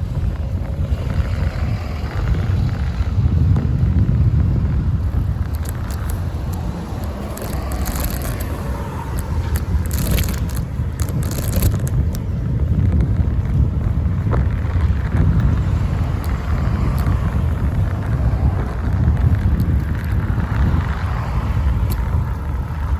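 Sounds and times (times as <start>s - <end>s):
wind rumbling on microphone: 0.0s - 22.9s
clicks and rattling bursts: 5.4s - 12.2s.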